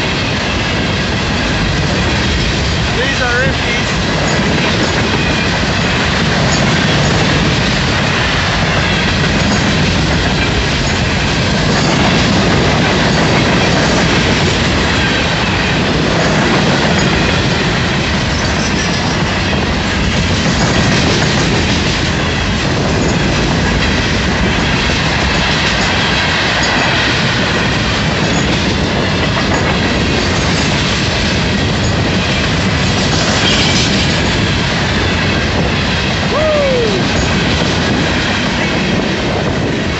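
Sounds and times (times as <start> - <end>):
freight train wheels clattering: 0.0 - 39.9.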